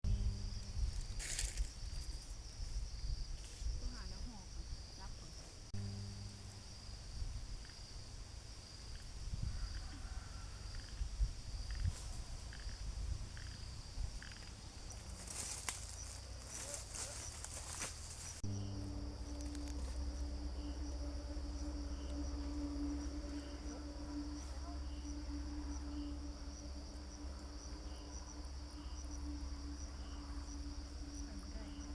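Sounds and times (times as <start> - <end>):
steady low hum: 0.0 - 2.9, 5.6 - 9.6, 10.5 - 31.9
insects chirring: 0.1 - 31.9
rustling of plants: 0.2 - 5.7, 14.2 - 20.6.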